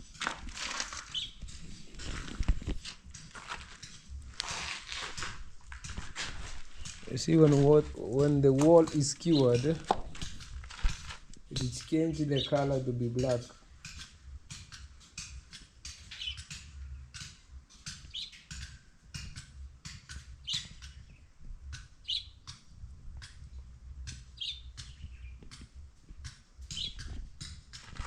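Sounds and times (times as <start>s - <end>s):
bird chirping: 1.1s - 1.5s, 6.8s - 10.4s, 11.5s - 13.6s, 16.0s - 16.6s, 18.0s - 18.7s, 20.4s - 21.4s, 22.0s - 22.6s, 24.4s - 25.6s, 26.7s - 27.2s.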